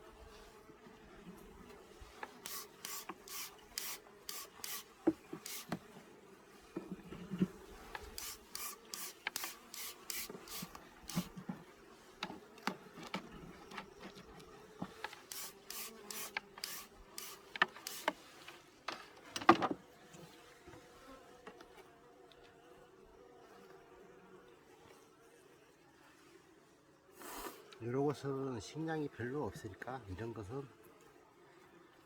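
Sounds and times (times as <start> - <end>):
rasping strokes on hive frames: 0.0 - 22.0
bees buzzing: 1.3 - 19.4.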